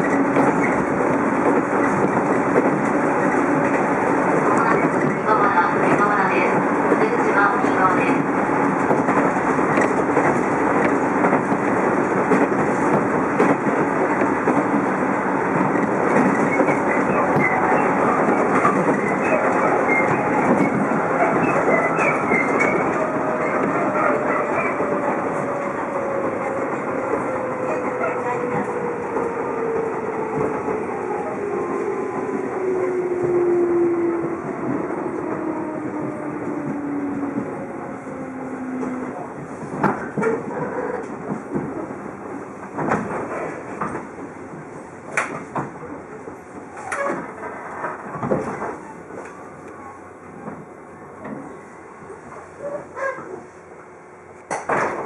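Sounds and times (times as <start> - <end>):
train wheel-on-rail rumble: 0.0 - 55.0
rail-joint clicks: 45.1 - 45.8, 54.4 - 55.0.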